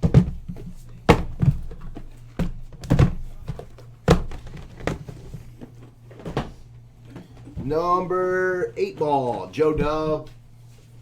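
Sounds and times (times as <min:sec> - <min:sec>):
boxes set down on a table: 0:00.0 - 0:07.5.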